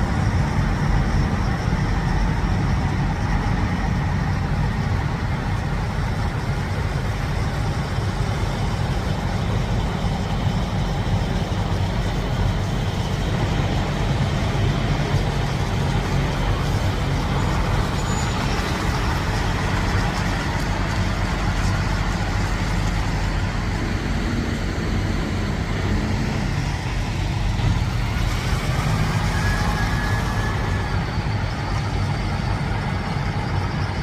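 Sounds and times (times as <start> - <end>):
diesel truck engines idling: 0.0 - 34.0.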